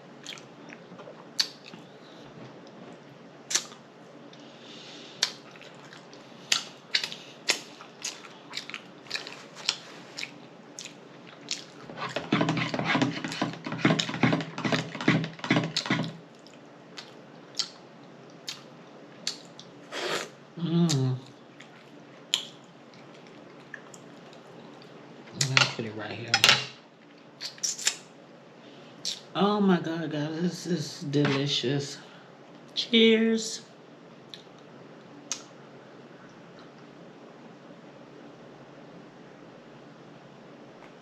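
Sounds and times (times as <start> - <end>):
chewing with lip smacks: 0.2 - 1.8, 5.2 - 12.2, 15.8 - 19.7, 21.5 - 24.9.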